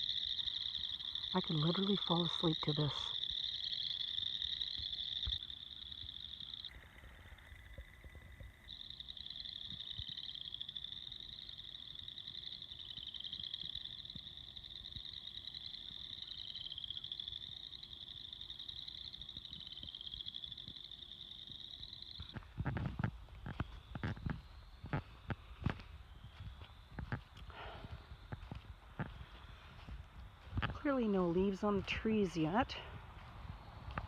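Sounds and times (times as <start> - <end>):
tree frogs calling: 0.0 - 29.9.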